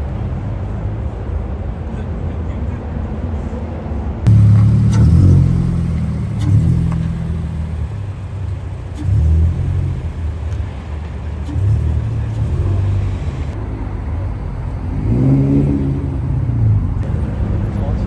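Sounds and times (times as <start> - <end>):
car engines revving: 4.3 - 18.0.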